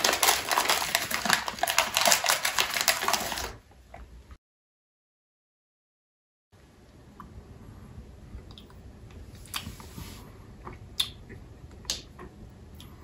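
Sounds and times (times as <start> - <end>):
chewing and crunching candy: 0.0 - 3.6.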